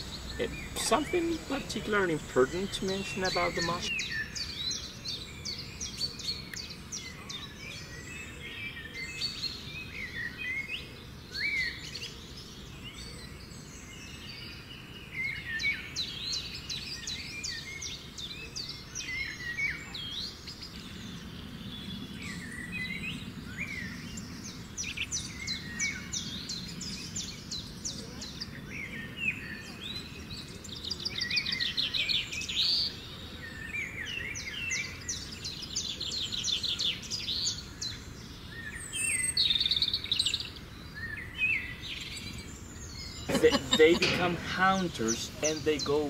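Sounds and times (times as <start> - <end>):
low steady hiss: 0.0 - 19.0, 34.5 - 46.0
birds chirping: 0.0 - 46.0
birds whistling: 0.0 - 46.0.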